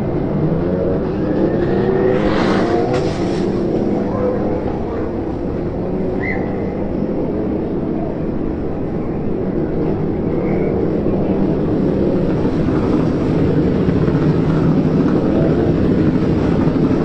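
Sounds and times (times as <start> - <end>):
engine rumble: 0.0 - 17.0.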